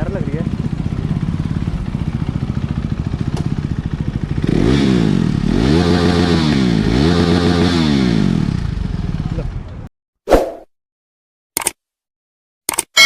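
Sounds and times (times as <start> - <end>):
motorcycle engine idling and revving: 0.0 - 9.9.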